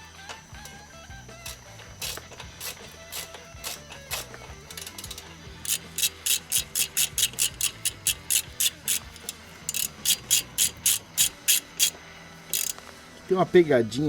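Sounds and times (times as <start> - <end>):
hand rasping strokes: 5.6 - 11.9, 12.6 - 12.8.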